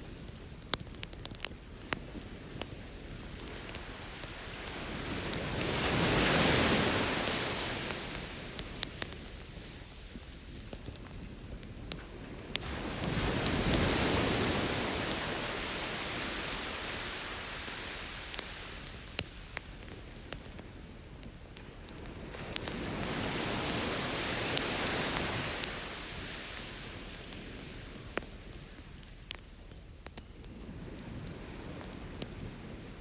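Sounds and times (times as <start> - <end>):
campfire crackling and popping: 0.0 - 33.0
ocean waves washing ashore: 2.2 - 10.0, 12.0 - 20.9, 21.6 - 28.8.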